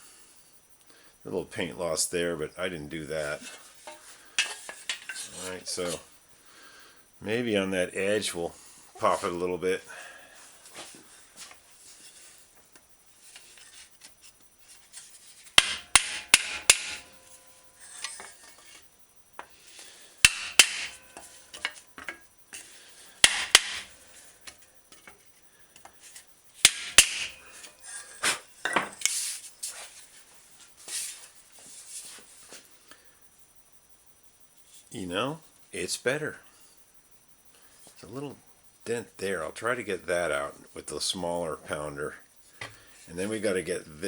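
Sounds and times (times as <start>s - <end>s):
hammer blows on metal fender: 15.6s - 18.2s, 20.2s - 22.2s, 23.2s - 23.9s, 26.6s - 27.7s.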